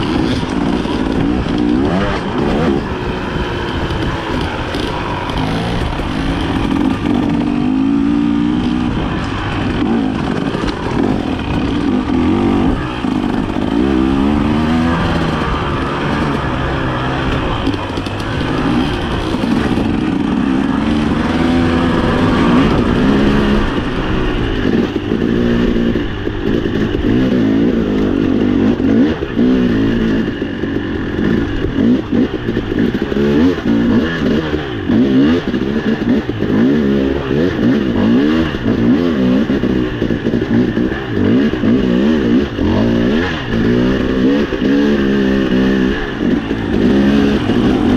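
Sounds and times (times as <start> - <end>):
clatter: 0.0 - 47.9
dirt bike engine revving: 0.0 - 47.9.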